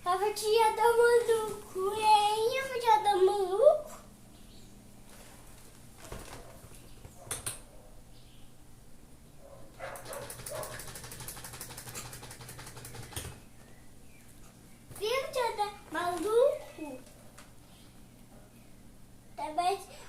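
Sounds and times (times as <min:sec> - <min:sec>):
electric fan humming: 0:00.0 - 0:20.0
fast clicking rattle: 0:09.8 - 0:13.5.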